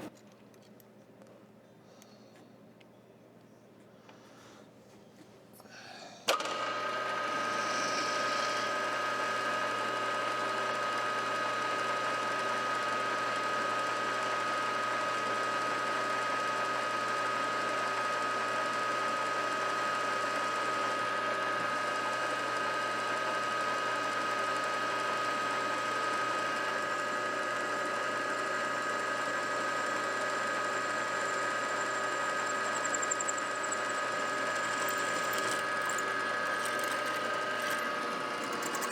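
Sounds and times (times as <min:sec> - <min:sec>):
milling machine spindle whine: 0:06.5 - 0:11.2, 0:28.9 - 0:38.9.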